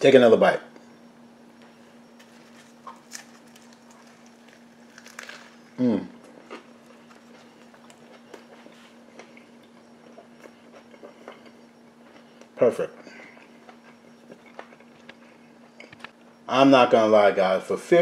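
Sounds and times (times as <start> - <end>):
steady low hum: 0.0 - 18.0
person chewing food: 2.2 - 12.6, 13.2 - 15.2
person humming mm: 5.8 - 6.2.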